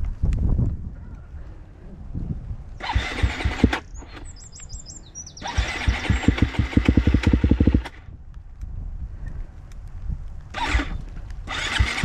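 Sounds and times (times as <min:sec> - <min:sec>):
motocross bike engine: 0:02.8 - 0:04.4, 0:05.3 - 0:08.1, 0:10.6 - 0:12.0.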